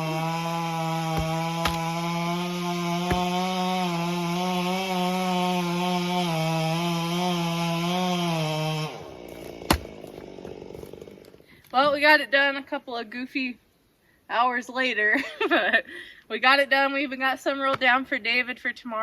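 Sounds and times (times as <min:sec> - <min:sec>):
chainsaw running at high speed: 0:00.0 - 0:11.4.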